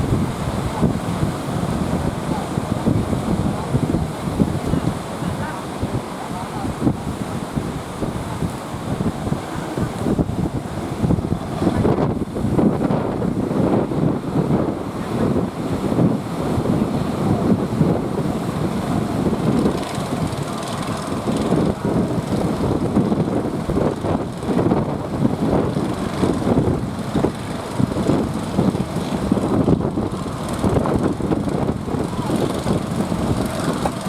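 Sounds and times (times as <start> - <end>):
boat motor and water rumble: 0.0 - 34.0
wind buffeting microphone: 0.0 - 34.0.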